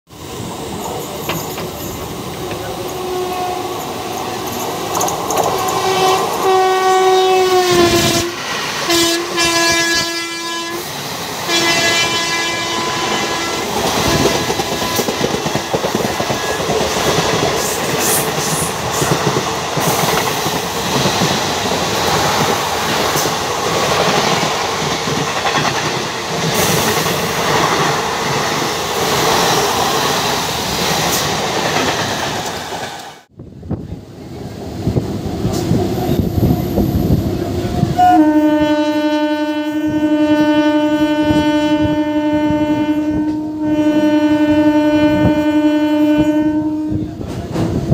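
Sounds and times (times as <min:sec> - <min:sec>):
train wheels rumbling on rails: 0:00.1 - 0:38.9, 0:39.8 - 0:47.9
train horn blasts: 0:02.9 - 0:03.9, 0:05.6 - 0:15.3, 0:37.8 - 0:47.3.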